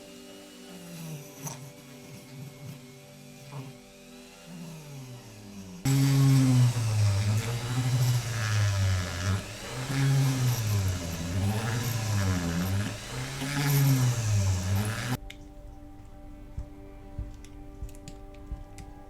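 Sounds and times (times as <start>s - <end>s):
electric drill motor tapping thread: 0.0s - 15.2s.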